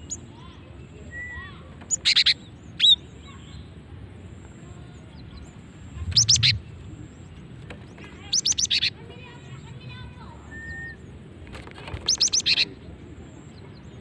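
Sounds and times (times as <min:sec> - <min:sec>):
bird calling high sharp notes: 0:06.0 - 0:06.8.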